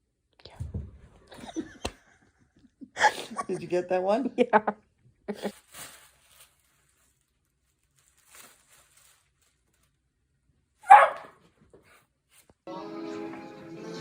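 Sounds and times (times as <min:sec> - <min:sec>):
dog barking: 0:10.8 - 0:11.4
music: 0:12.7 - 0:14.0.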